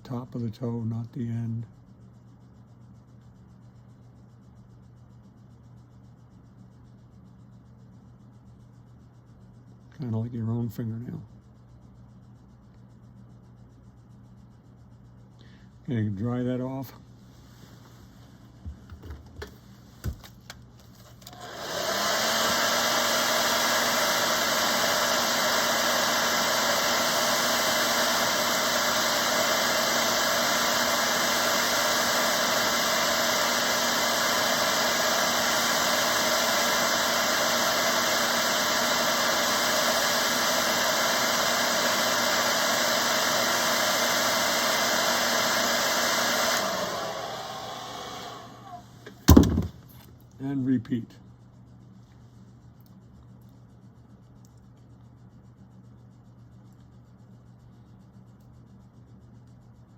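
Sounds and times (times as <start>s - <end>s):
hot-air dryer blowing: 21.3s - 49.7s.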